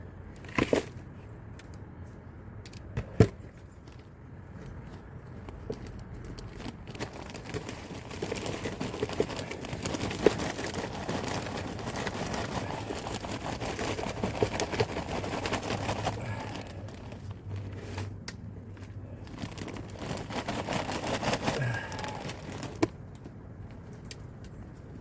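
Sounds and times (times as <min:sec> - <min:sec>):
plastic bags rustling: 0:05.7 - 0:23.1.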